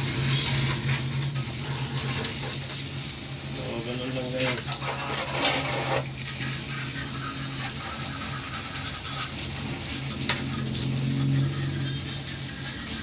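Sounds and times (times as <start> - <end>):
water spraying with hiss: 0.0 - 13.0.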